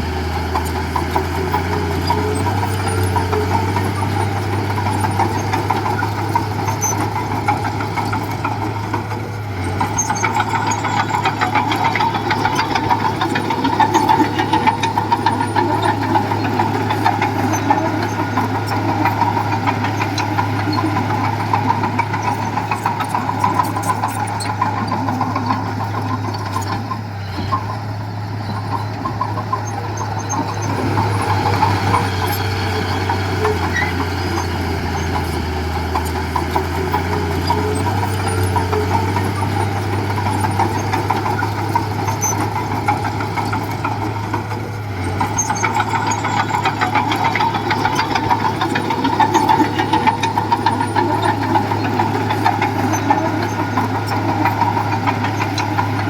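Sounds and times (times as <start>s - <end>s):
heavy machinery diesel engine: 0.0s - 56.0s
rapid clattering ticks: 0.0s - 56.0s.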